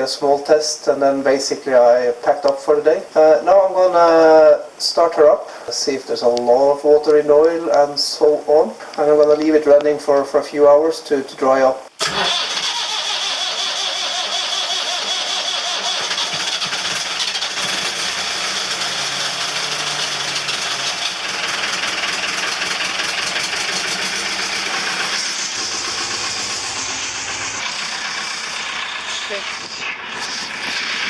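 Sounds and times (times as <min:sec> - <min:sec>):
diesel engine running: 0:12.0 - 0:31.0.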